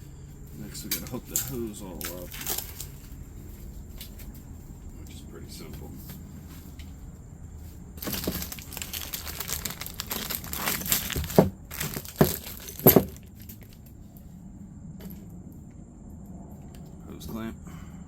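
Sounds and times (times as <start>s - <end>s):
plastic packaging crinkling: 2.0s - 3.1s, 8.0s - 13.8s
sharp plastic cracks: 8.0s - 13.9s.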